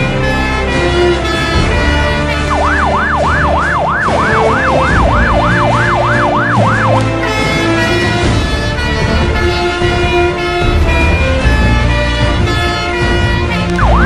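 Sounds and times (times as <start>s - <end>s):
background music: 0.0s - 14.0s
fire engine siren yelping: 1.2s - 9.4s, 12.8s - 14.0s.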